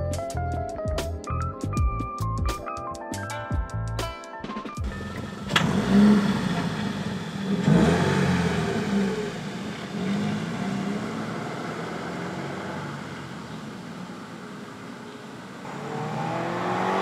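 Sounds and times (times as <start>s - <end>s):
car engine accelerating: 4.8s - 17.0s.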